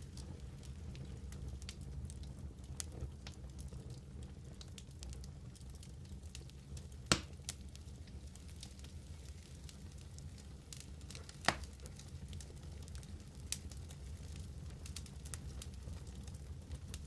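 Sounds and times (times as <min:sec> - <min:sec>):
wood fire crackling: 0:00.0 - 0:17.0
loud sharp pop: 0:07.1 - 0:07.3.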